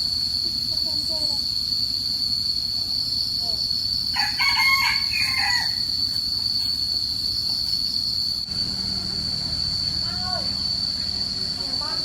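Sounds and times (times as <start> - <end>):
high-pitched whine: 0.0 - 12.0
low steady hum: 0.0 - 12.0
rooster crowing: 4.1 - 6.0
low rumbling noise: 8.3 - 12.0.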